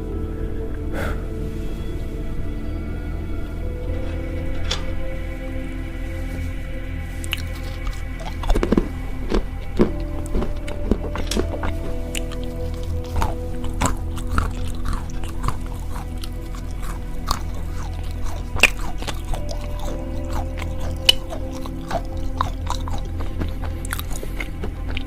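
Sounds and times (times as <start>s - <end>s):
background music: 0.0s - 25.0s
crunchy chewing of peanuts: 6.3s - 25.0s.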